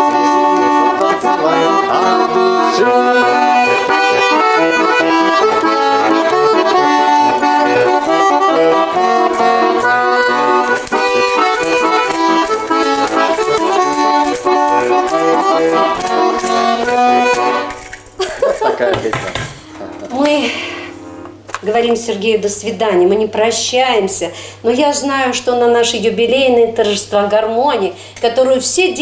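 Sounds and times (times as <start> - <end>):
button accordion folk dance tune: 0.0 - 18.5
rhythmic jingling percussion: 7.7 - 19.7.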